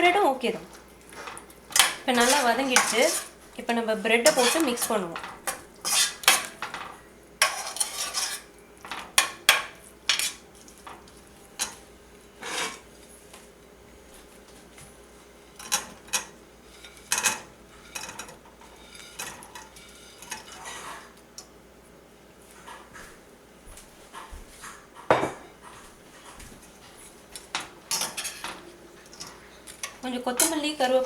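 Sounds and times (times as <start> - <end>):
metal spoon scraping a pan: 1.2 - 3.4, 4.2 - 9.4, 10.1 - 10.4, 12.4 - 12.8, 15.6 - 21.1, 27.9 - 28.6, 29.2 - 30.8.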